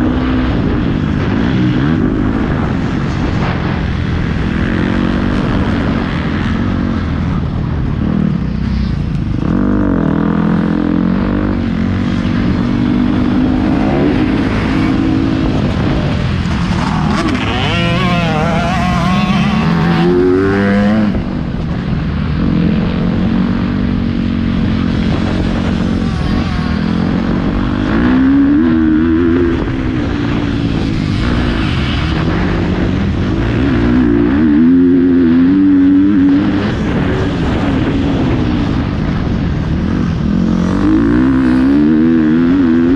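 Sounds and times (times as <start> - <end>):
motocross bike engine revving: 9.3 - 21.6, 22.4 - 38.7.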